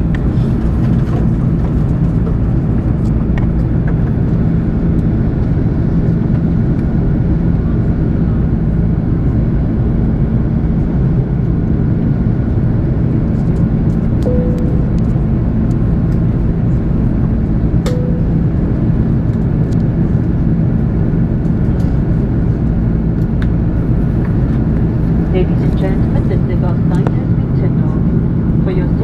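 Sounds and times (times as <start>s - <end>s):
airliner cabin drone: 0.0s - 29.0s
short faint tones: 14.3s - 15.5s.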